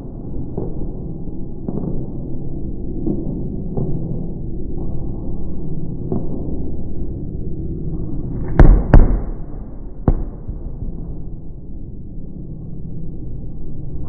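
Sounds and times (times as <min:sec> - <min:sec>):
steady low rumble: 0:06.8 - 0:14.0
fireworks shells bursting: 0:08.6 - 0:10.6.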